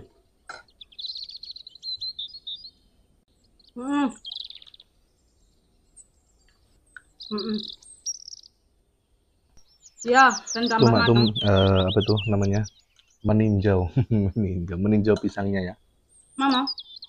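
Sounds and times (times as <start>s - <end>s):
small birds trilling: 0.0s - 17.0s
person voice sounds: 10.7s - 12.6s, 13.3s - 15.7s.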